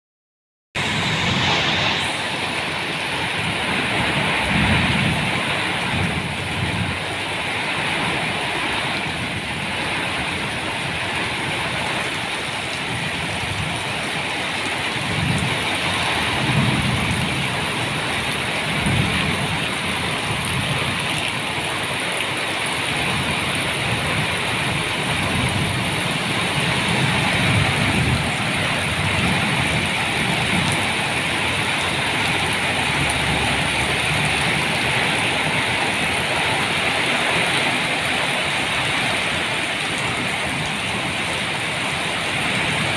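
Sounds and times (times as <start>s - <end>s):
low thunder rumbles: 0.8s - 7.3s, 12.8s - 21.2s, 22.8s - 37.6s
steady rain: 0.8s - 42.9s.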